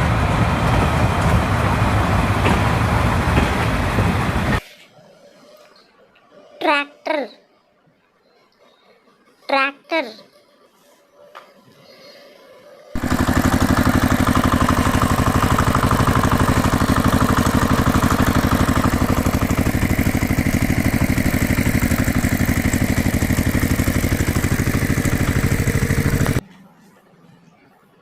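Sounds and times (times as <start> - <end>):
tractor engine chugging: 13.0 - 26.4.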